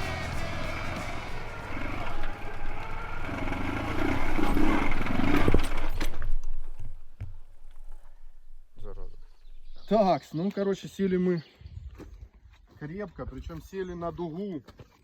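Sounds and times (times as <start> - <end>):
motorcycle engine revving hard: 0.0 - 6.2.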